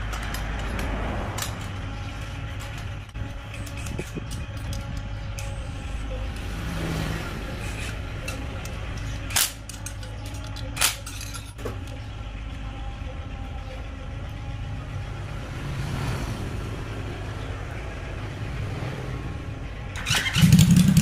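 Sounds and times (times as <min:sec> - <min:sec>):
motorcycle engine running: 0:19.3 - 0:21.0.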